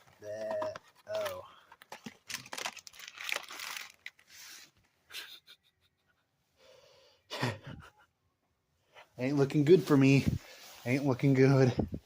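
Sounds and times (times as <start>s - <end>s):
plastic packaging crinkling: 0.0s - 4.7s.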